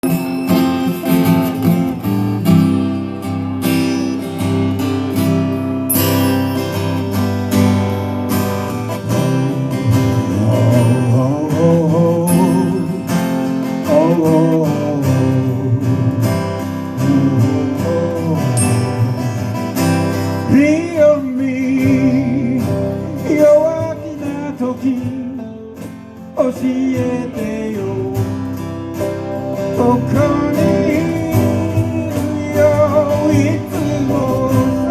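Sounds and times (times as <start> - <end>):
strummed acoustic guitar: 0.0 - 34.9
person singing: 9.2 - 19.4, 20.4 - 25.4, 29.6 - 34.9.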